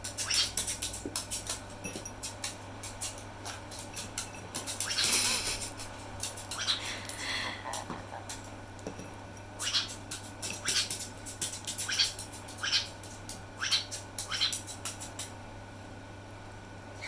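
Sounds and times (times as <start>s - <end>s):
parrot shrill calls: 9.6s - 9.9s, 11.8s - 12.9s, 13.6s - 14.6s.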